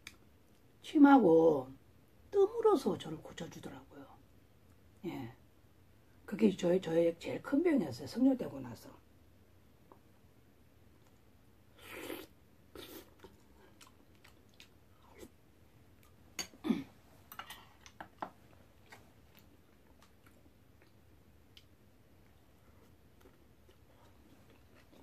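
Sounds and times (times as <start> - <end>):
person chewing food: 11.8 - 16.6, 17.3 - 25.0.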